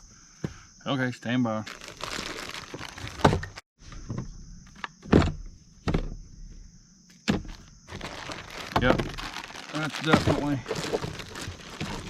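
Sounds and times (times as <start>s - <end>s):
plastic case knocks and thumps: 5.0s - 6.2s, 7.2s - 9.3s.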